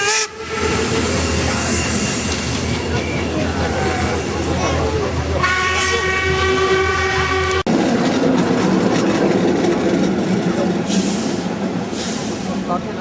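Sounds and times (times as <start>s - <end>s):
steam locomotive whistle: 0.0s - 2.0s, 5.4s - 7.6s
moving train running noise: 0.0s - 13.0s.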